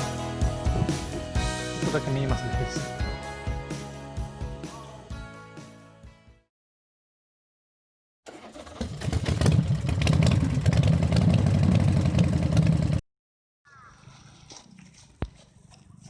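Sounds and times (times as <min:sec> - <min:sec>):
motorcycle engine running: 0:08.9 - 0:13.0.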